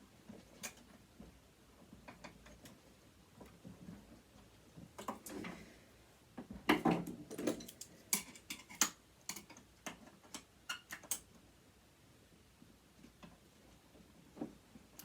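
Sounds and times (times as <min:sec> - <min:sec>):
metal tools clicking and tapping: 0:06.7 - 0:11.3.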